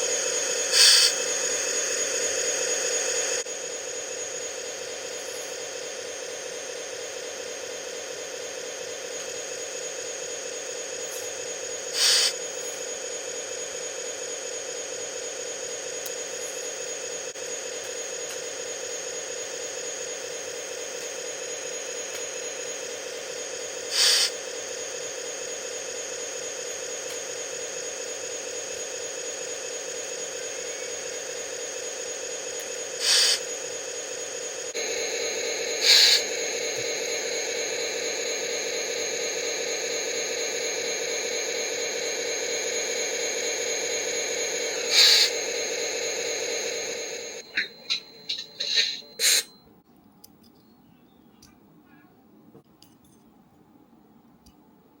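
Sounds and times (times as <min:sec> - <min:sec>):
air brake hisses: 0:00.7 - 0:01.3, 0:11.9 - 0:12.4, 0:23.9 - 0:24.4, 0:33.0 - 0:33.5, 0:35.8 - 0:36.3, 0:44.8 - 0:45.4, 0:48.3 - 0:49.5
simulated diesel engine idle: 0:21.4 - 0:49.2.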